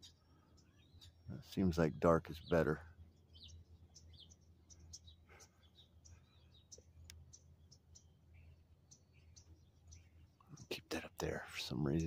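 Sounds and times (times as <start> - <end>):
small birds chirping: 0.0 - 12.0
soft clicks: 6.7 - 7.2.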